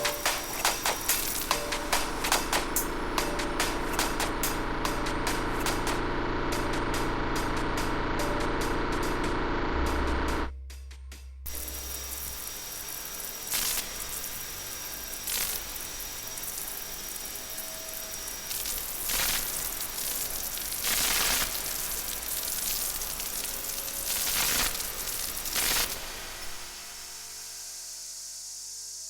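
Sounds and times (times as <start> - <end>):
faint held electronic tones: 0.0 - 4.4
hissing spray-like noise: 0.0 - 6.6, 11.5 - 29.0.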